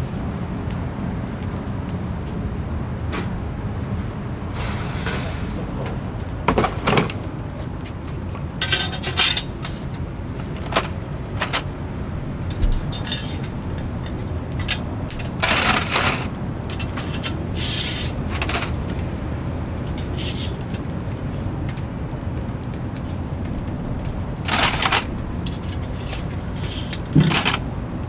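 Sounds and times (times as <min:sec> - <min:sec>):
metal kitchenware clinking: 0:05.1 - 0:07.3, 0:08.4 - 0:11.7, 0:12.3 - 0:21.0, 0:24.4 - 0:27.7.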